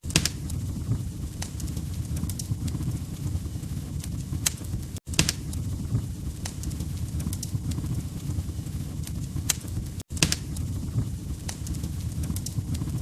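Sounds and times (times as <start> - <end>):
log fire popping and snapping: 0.0 - 13.0
low rumble of flames: 0.0 - 13.0.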